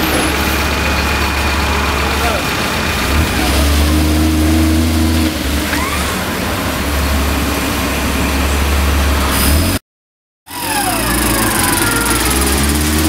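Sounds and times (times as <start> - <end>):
engine running at low revs: 0.0 - 9.8, 10.5 - 13.0.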